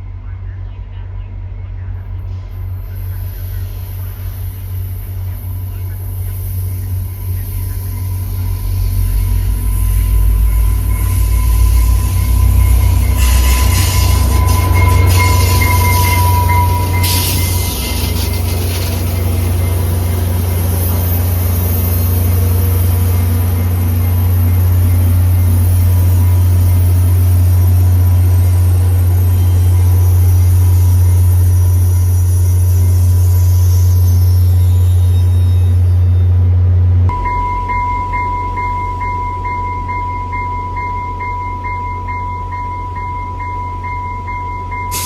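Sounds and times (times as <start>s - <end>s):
train rumbling by: 0.0s - 45.0s
thin squeal: 6.2s - 27.0s.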